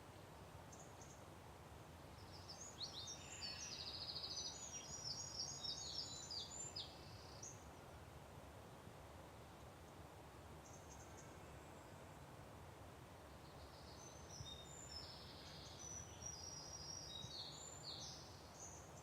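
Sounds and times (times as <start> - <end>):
songbird chirping and trilling: 2.2 - 7.7, 13.3 - 19.0.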